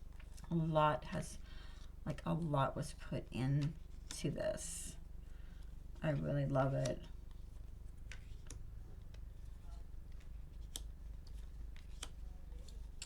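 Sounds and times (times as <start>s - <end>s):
low steady hum: 0.0s - 13.0s
cards clicking and sliding: 10.1s - 13.0s.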